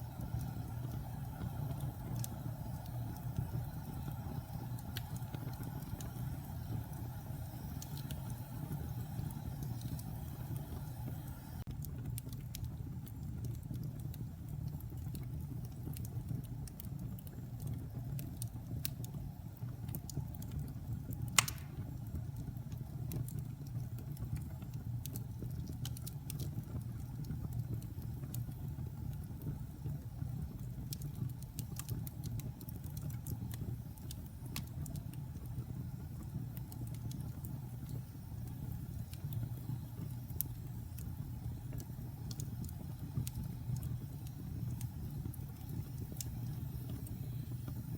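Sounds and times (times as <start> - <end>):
low rumble of flames: 0.0 - 47.9
wood fire crackling: 0.0 - 47.9
sharp pop of fire: 21.4 - 22.0.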